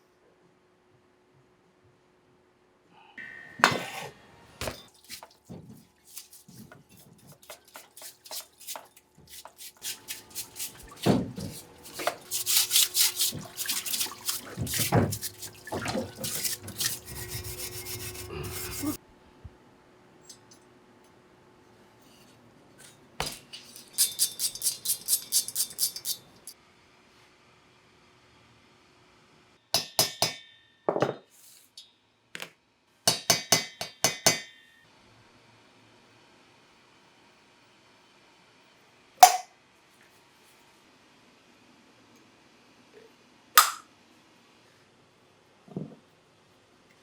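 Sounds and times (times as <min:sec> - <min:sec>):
metal clinks and rubbing: 0:23.6 - 0:26.5.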